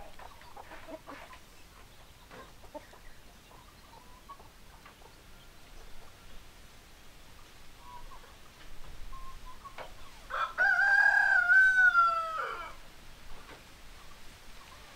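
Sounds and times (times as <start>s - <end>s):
faint chicken calls: 0.0s - 14.9s
rooster crowing: 10.3s - 12.8s.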